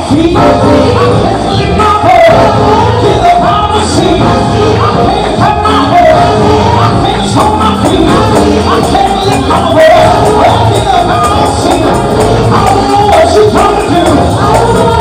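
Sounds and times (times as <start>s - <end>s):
live gospel band with singing: 0.0s - 15.0s
tambourine: 7.7s - 15.0s.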